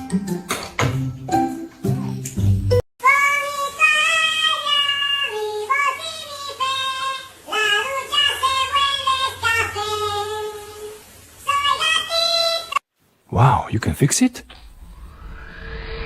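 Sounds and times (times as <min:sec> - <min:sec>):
high-pitched voice singing: 0:03.0 - 0:12.8.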